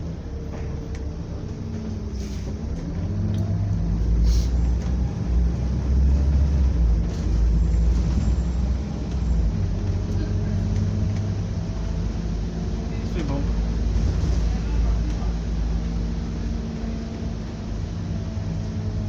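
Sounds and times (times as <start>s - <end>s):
bus engine rumbling: 0.0s - 19.0s
short hisses: 4.2s - 4.6s.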